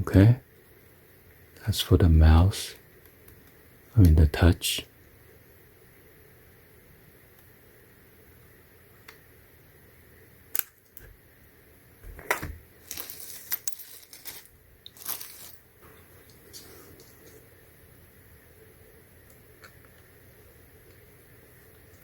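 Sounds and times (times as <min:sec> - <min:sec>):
scraping and rustling: 0:12.8 - 0:17.4.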